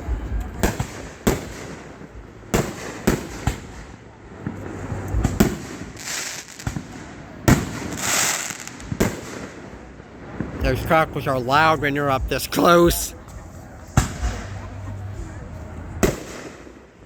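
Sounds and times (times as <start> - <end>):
firework crackling: 0.0 - 14.6, 15.9 - 17.0
firework bangs: 0.6 - 11.0, 15.9 - 17.0.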